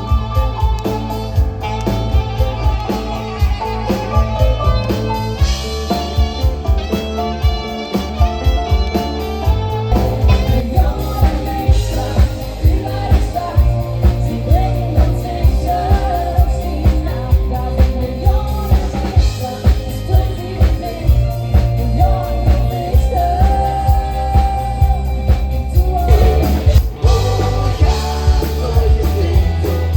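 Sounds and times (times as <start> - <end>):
rock band playing: 0.0 - 29.9
person singing: 7.9 - 29.9.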